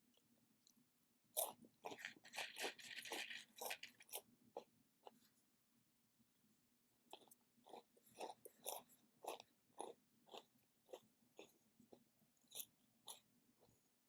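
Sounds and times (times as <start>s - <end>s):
person chewing crunchy food: 1.4s - 5.3s, 7.1s - 13.8s.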